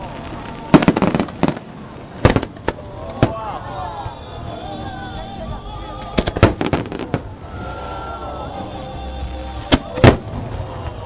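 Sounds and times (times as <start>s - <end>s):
fireworks bangs: 0.0s - 3.6s, 6.0s - 8.1s, 9.1s - 11.0s
music playing: 2.4s - 11.0s.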